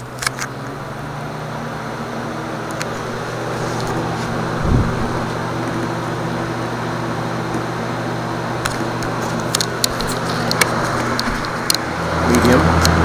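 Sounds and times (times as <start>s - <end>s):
box fan running: 0.0s - 13.0s
low thump: 4.5s - 5.4s.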